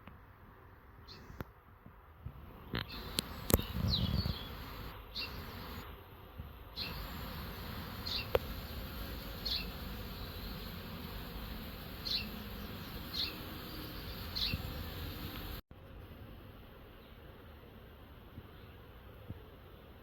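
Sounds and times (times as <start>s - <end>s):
bees buzzing: 2.9s - 5.8s, 6.8s - 15.6s.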